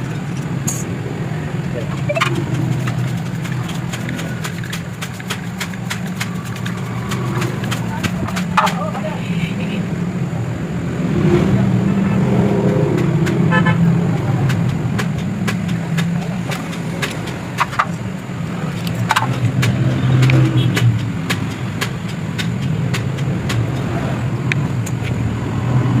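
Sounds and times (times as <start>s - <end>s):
motorcycle engine running: 1.4s - 9.2s
sharp clicks and knocks: 1.9s - 8.9s, 14.2s - 25.2s.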